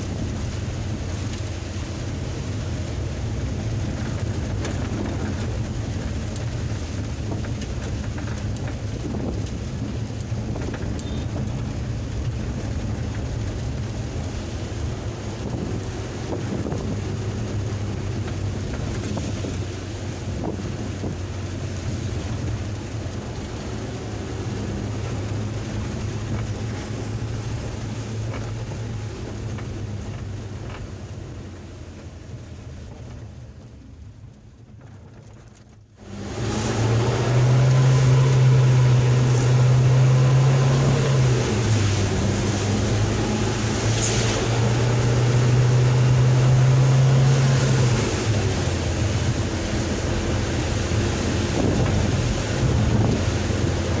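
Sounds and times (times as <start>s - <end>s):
engine hum: 0.0s - 54.0s
heavy rain: 0.0s - 54.0s
road noise: 0.0s - 54.0s.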